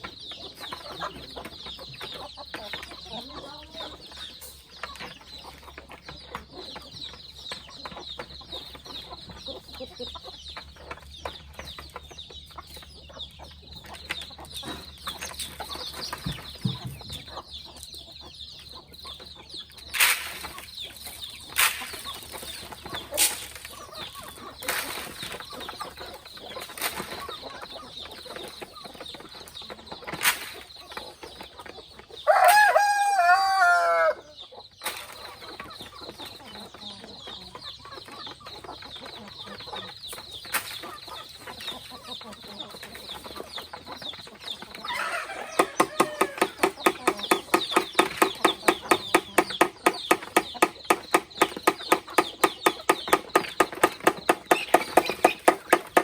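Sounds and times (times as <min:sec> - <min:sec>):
chickens: 0:00.0 - 0:56.0
rooster crowing: 0:32.3 - 0:34.2, 0:44.9 - 0:47.4
fast rhythm of short sounds: 0:45.5 - 0:56.0.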